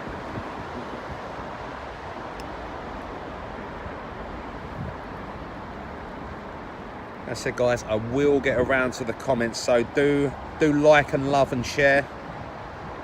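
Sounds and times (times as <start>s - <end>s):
wind on microphone: 0.0s - 5.9s
vehicle noise: 0.0s - 13.0s.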